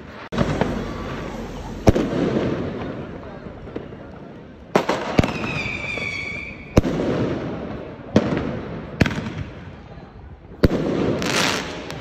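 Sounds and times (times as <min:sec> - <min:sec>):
firework whistling: 0:00.0 - 0:04.2, 0:04.8 - 0:07.1
firework bangs with rumble: 0:00.3 - 0:09.6.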